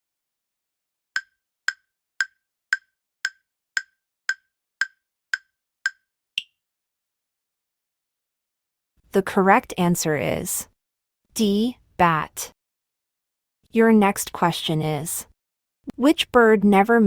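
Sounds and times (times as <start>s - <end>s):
countdown timer ticks: 1.2s - 6.5s.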